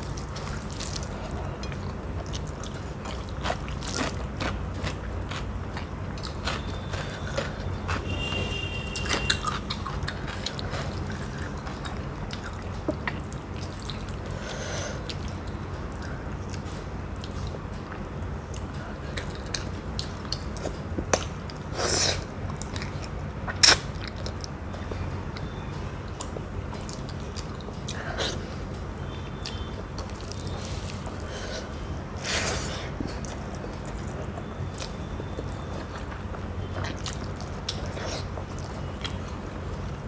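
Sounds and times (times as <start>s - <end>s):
wet squishing of food by hand: 0.0s - 14.2s, 25.4s - 39.9s
person chewing: 0.0s - 21.7s, 22.5s - 39.8s.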